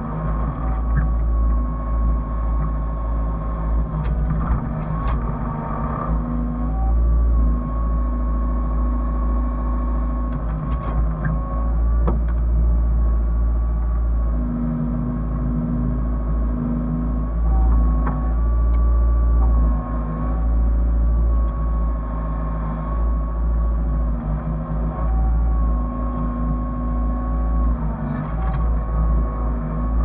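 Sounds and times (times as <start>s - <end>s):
diesel engine low rumble: 0.0s - 30.0s
steady whine: 0.0s - 30.0s.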